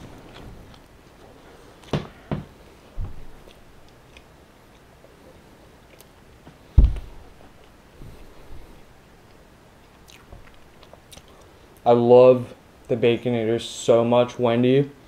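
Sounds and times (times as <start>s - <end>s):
person chewing: 3.2s - 6.3s, 9.3s - 11.5s
low thump: 6.8s - 7.2s.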